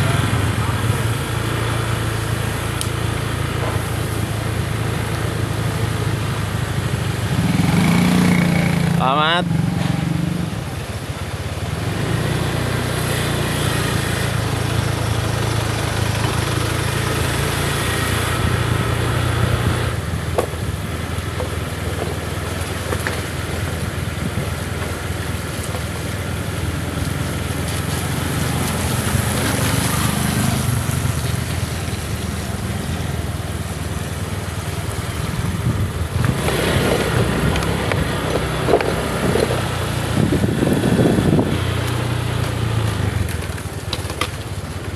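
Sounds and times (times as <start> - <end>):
motorcycle engine running: 0.0 - 44.9
road noise: 0.0 - 44.9
wind noise: 35.1 - 43.3.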